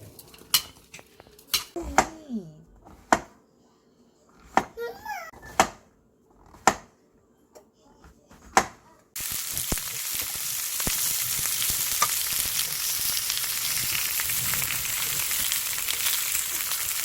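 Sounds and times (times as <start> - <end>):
food sizzling in a pan: 9.2 - 17.0.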